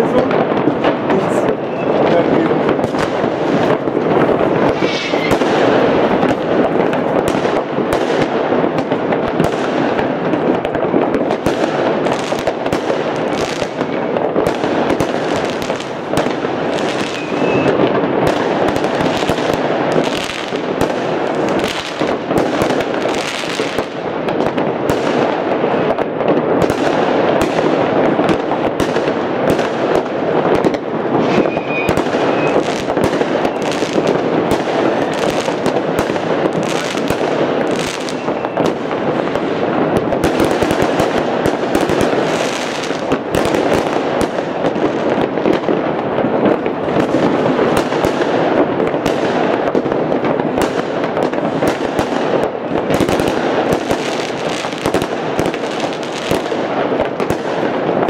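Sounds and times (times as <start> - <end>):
fireworks crackling and banging: 0.0 - 58.0
high firework whistle: 1.6 - 2.2, 4.3 - 6.4, 16.9 - 17.9, 31.2 - 34.1, 37.8 - 38.7.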